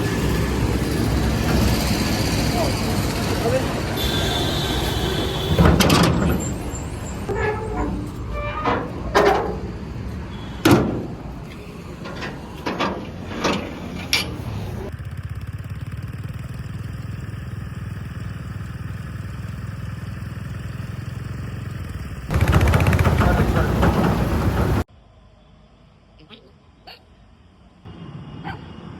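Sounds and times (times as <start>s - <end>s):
diesel engine running: 0.0s - 24.9s
metallic clanks and knocks: 5.5s - 14.9s, 22.3s - 24.9s.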